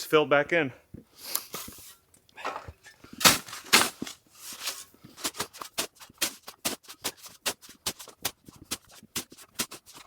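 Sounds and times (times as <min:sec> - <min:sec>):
shovel scraping powder snow: 0:03.2 - 0:08.0.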